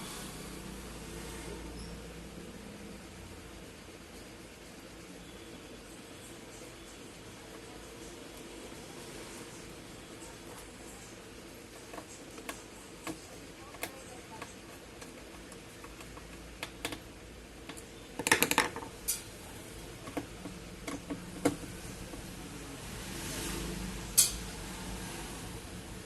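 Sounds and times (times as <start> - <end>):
tools and parts clicking: 11.9 - 19.3, 24.2 - 24.5
parts rattling: 17.6 - 22.3.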